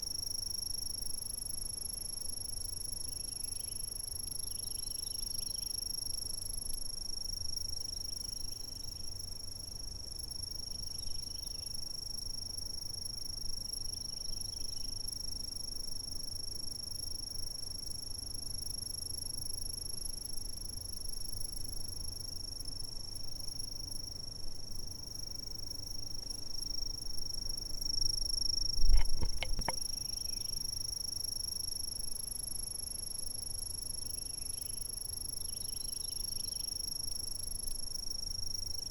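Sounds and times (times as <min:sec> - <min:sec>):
insects trilling: 0:25.0 - 0:32.3, 0:33.4 - 0:38.9.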